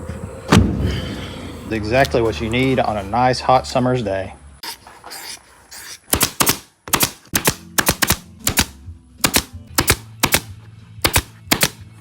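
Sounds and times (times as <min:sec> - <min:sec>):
staple gun snapping: 0:06.1 - 0:11.8.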